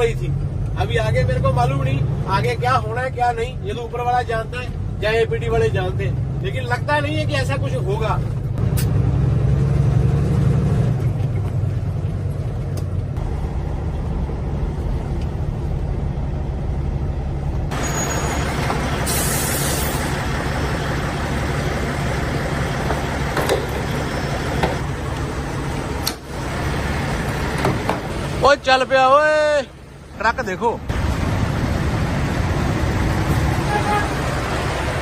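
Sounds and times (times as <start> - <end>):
road noise: 0.0 - 35.0
truck diesel engine running: 8.4 - 35.0
air brake hiss: 19.0 - 20.2.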